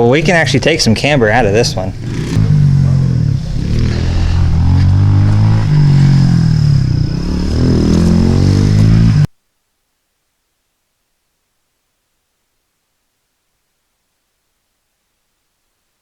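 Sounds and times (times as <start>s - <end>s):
car engine running: 0.0s - 9.3s.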